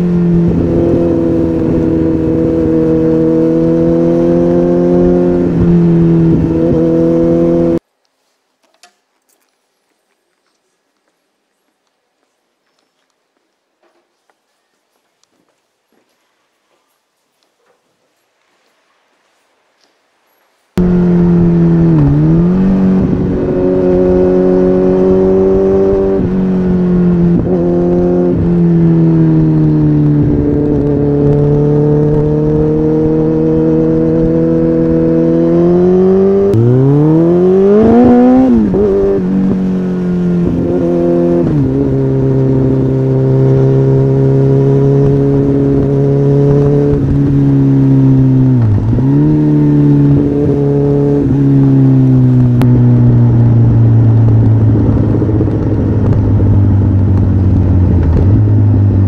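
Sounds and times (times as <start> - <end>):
motorcycle engine revving: 0.0 - 7.8, 20.8 - 59.0.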